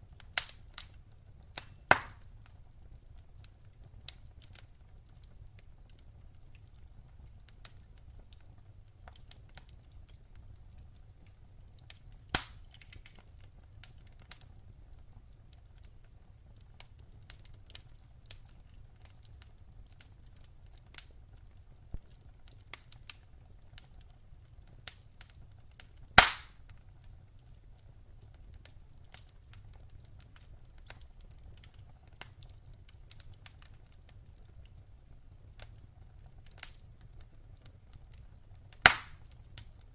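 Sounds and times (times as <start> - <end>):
campfire crackling: 0.0 - 39.9
loud fire pops: 0.2 - 0.9, 1.5 - 2.6, 11.9 - 14.4, 26.0 - 26.8, 38.1 - 39.8.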